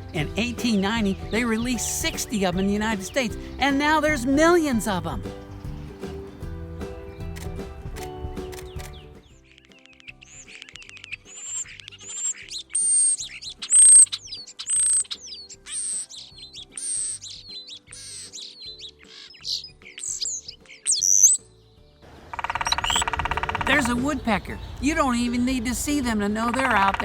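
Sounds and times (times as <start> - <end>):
bird whistling high notes: 8.4 - 21.6, 22.4 - 24.2.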